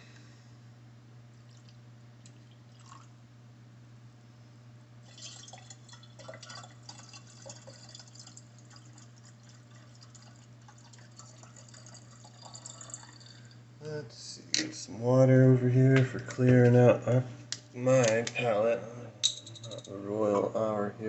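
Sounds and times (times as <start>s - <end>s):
faint low hum: 0.0s - 21.0s
liquid pouring into a glass: 1.5s - 3.1s, 5.0s - 13.6s.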